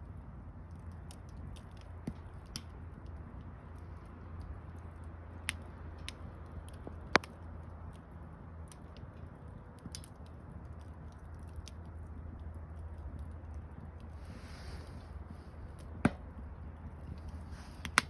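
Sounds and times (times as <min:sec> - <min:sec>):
campfire crackling and popping: 0:00.0 - 0:18.0
low fire rumble: 0:00.0 - 0:18.0
loud wood crack: 0:15.8 - 0:18.0.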